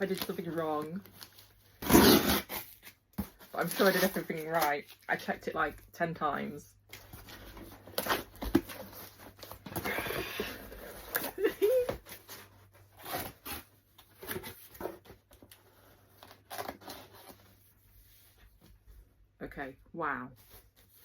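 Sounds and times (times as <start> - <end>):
packaging rustling and crinkling: 0.0 - 1.8.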